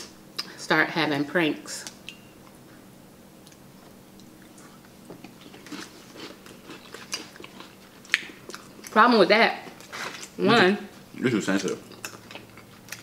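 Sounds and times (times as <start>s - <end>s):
chewing: 3.4s - 9.0s, 11.5s - 13.0s.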